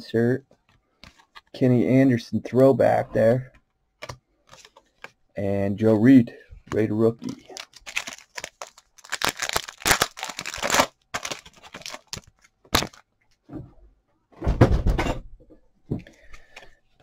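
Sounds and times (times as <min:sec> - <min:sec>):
foil wrapper crinkling and tearing: 0:07.2 - 0:13.0.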